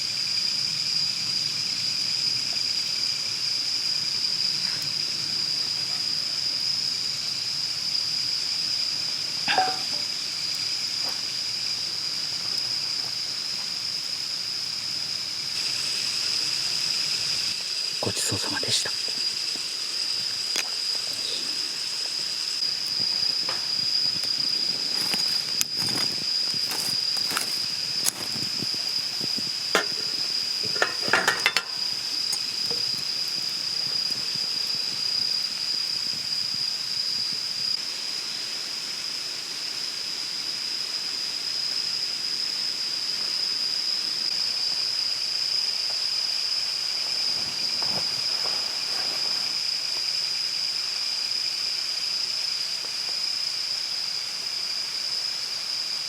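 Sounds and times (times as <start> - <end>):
insects trilling: 0.0 - 56.0
sharp clicks and clinks: 29.8 - 33.0.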